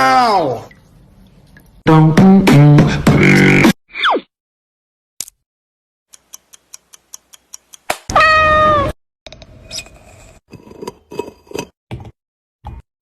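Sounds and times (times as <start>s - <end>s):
evenly spaced ticks: 6.1s - 7.9s
cat meowing: 8.1s - 9.0s.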